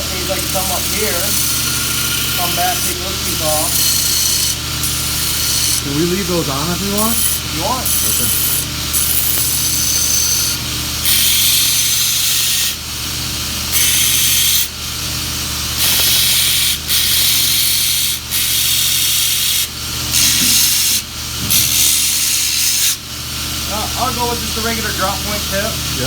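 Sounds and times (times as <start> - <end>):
belt grinder motor hum: 0.0 - 12.8, 13.6 - 14.8, 15.7 - 23.0
knife grinding hiss: 0.3 - 5.9, 7.1 - 12.8, 13.7 - 14.7, 15.8 - 23.0.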